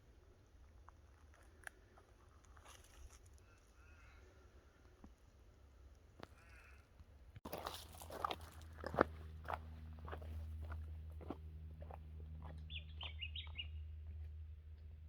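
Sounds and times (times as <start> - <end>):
footsteps crunching on track: 7.4 - 13.7
bird chirping: 12.6 - 13.9.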